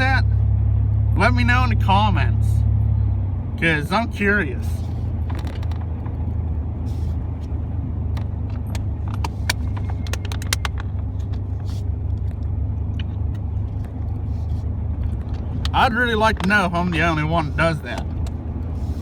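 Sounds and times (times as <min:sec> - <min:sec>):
truck engine and road rumble: 0:00.0 - 0:19.0
light clicks and rattles: 0:08.1 - 0:14.2.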